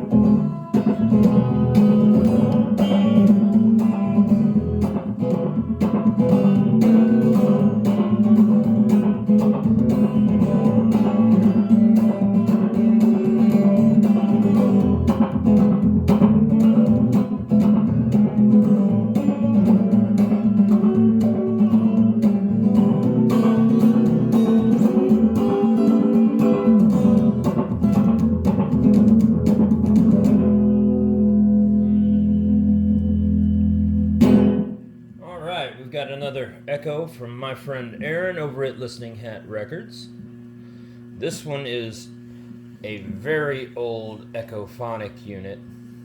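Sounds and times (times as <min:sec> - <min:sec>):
guitar picked passage: 0:00.0 - 0:35.4.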